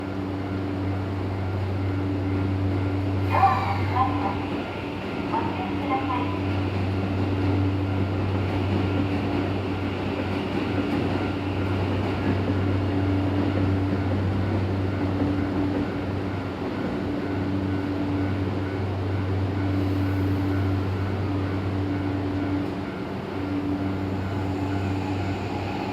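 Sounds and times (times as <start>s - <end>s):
electric train humming: 0.0s - 25.9s.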